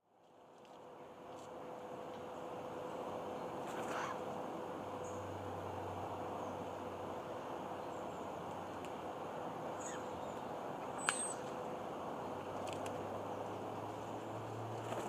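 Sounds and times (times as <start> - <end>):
steady ambient hiss: 0.1 - 15.0
small birds chirping: 9.7 - 11.6.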